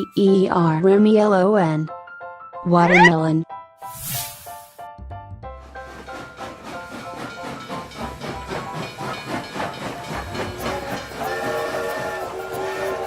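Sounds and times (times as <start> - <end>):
steam locomotive chuffing: 5.6 - 13.0
steam whistle blowing: 10.7 - 13.0.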